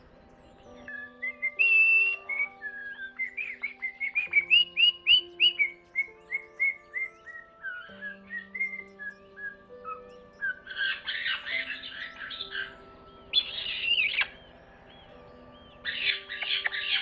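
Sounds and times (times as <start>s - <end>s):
bird singing whistled notes: 0.0s - 17.0s
soft background music: 0.0s - 17.0s.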